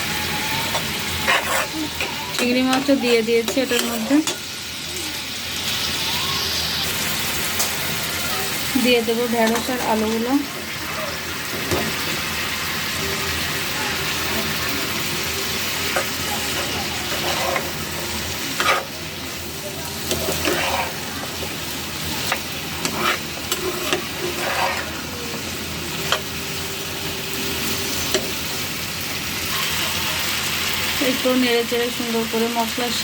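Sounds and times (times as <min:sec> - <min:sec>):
vegetables sizzling in hot oil: 0:00.0 - 0:33.0
spatula scraping and tapping pan: 0:00.7 - 0:04.5, 0:09.4 - 0:10.2, 0:15.9 - 0:17.9, 0:18.5 - 0:19.0, 0:20.0 - 0:21.6, 0:22.2 - 0:25.0.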